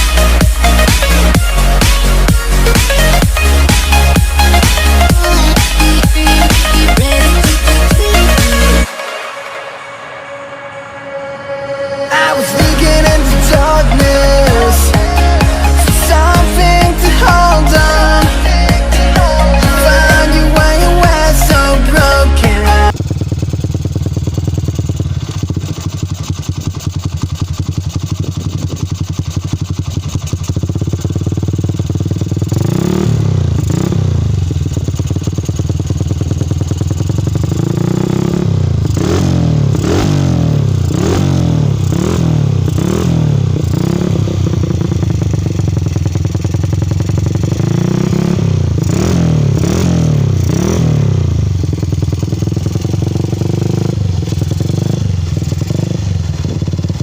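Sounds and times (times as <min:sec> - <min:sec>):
motorcycle idling and revving: 0:00.0 - 0:57.0.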